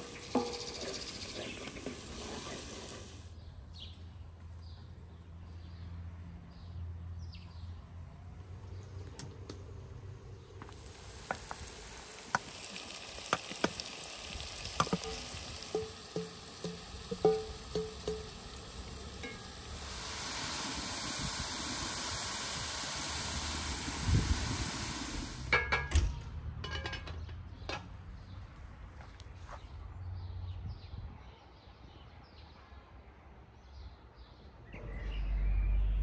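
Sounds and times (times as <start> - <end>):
nettles sizzling in a pot: 0.0 - 3.3, 10.6 - 25.5
quiet outdoor background: 0.0 - 36.0
metal pot lid clanks: 14.9 - 18.5.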